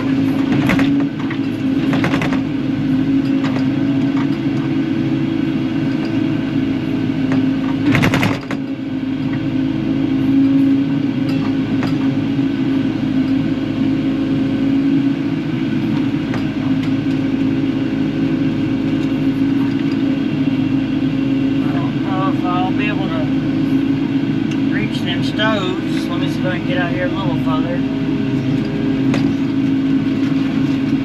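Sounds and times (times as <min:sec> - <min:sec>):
loud rattling clatter: 0:00.0 - 0:02.6, 0:07.2 - 0:08.8
excavator diesel engine: 0:00.0 - 0:31.0.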